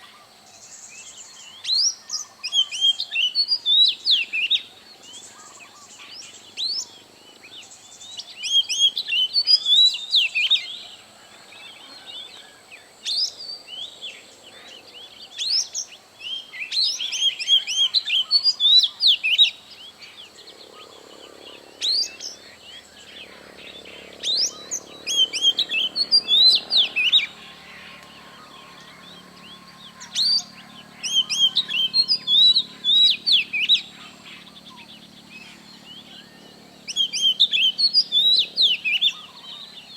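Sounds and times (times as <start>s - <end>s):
faint high-pitched whine: 0.0s - 39.9s
songbird singing: 0.0s - 39.9s.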